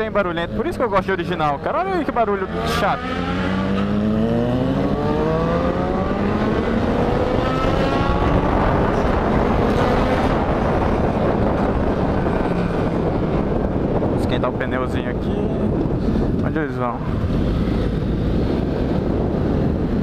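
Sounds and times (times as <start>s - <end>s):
motorcycle engine accelerating: 0.0s - 14.2s
wind rushing over microphone: 0.0s - 20.0s.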